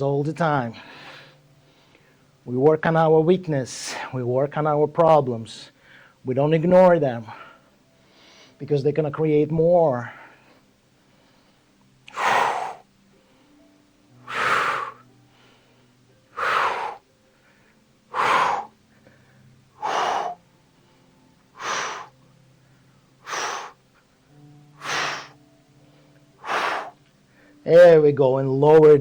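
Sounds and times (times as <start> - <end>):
man exhaling forcefully: 12.1 - 12.8, 14.3 - 15.0, 16.4 - 17.0, 18.1 - 18.8, 19.8 - 20.4, 21.6 - 22.1, 23.2 - 23.8, 24.8 - 25.4, 26.4 - 27.0.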